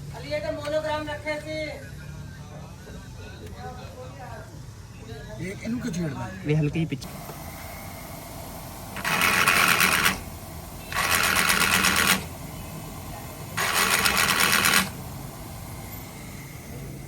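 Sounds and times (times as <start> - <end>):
power tool rattling: 8.9 - 12.4, 13.6 - 15.1.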